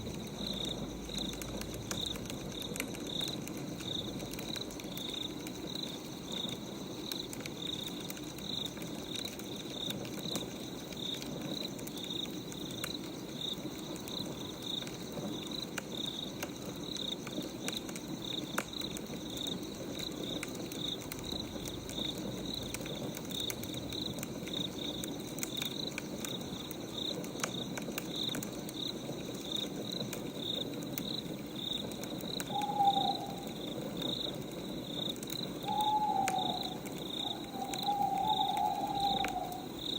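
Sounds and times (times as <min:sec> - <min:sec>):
crickets chirping: 0:00.0 - 0:39.9
wood fire crackling: 0:00.0 - 0:39.9
owl hoot: 0:32.4 - 0:33.8, 0:35.6 - 0:39.8.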